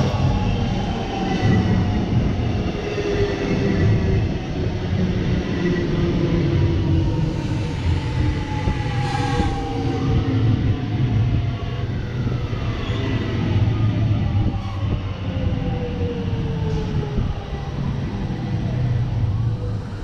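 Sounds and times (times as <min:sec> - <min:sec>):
electric train rumbling: 0:00.0 - 0:20.0.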